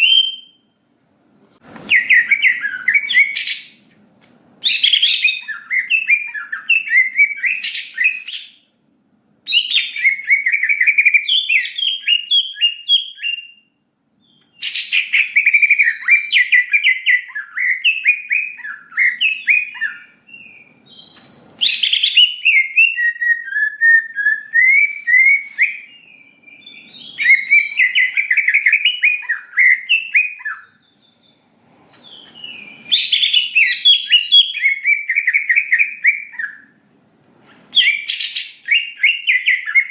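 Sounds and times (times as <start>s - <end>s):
bird singing chattering whistles: 1.9s - 3.8s, 4.6s - 8.6s, 9.5s - 31.4s, 32.0s - 36.7s, 37.7s - 39.9s.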